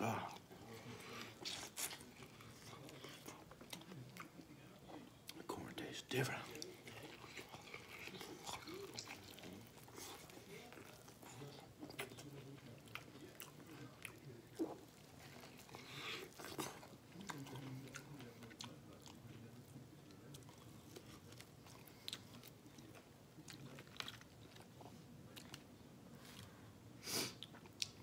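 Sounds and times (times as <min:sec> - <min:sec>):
person chewing and lip-smacking: 0:27.4 - 0:28.0.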